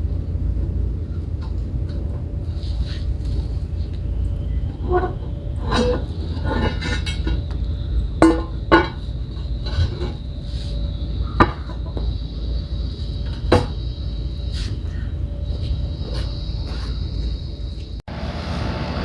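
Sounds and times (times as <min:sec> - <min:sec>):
steady low rumble: 0:00.0 - 0:19.0
pavers clinking and knocking: 0:04.8 - 0:10.4.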